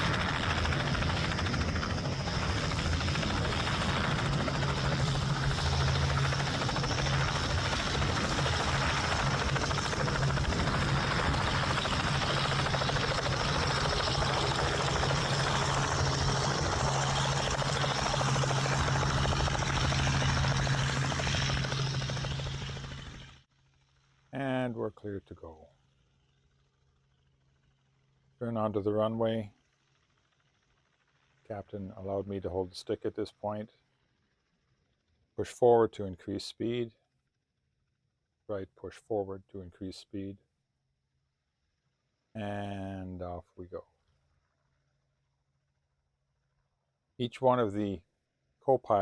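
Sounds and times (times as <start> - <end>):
helicopter engine and rotor: 0.0 - 24.3, 25.3 - 32.5, 33.8 - 35.3.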